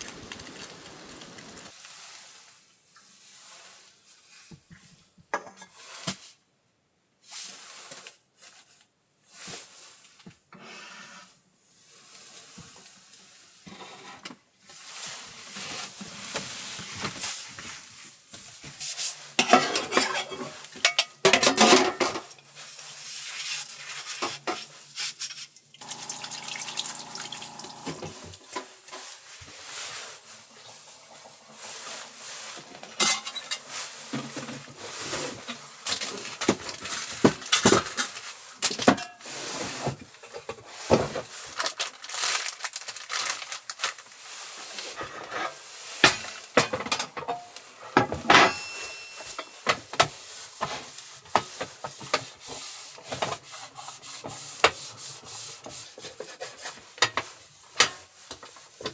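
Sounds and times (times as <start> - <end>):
cookware clinking and scraping: 19.4 - 22.4, 25.8 - 29.2, 32.7 - 37.0, 37.6 - 39.4, 45.0 - 50.8.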